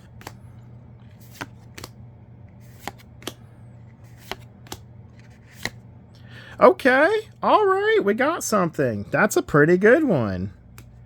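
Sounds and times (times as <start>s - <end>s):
cards snapping: 0.0s - 0.4s, 1.0s - 2.0s, 2.6s - 3.4s, 4.1s - 5.8s, 10.7s - 11.0s
low steady hum: 0.0s - 11.0s.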